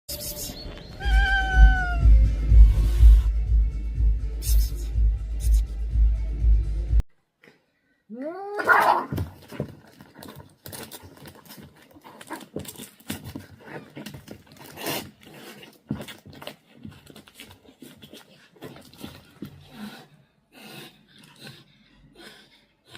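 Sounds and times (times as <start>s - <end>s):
cat yowling: 1.0s - 2.2s.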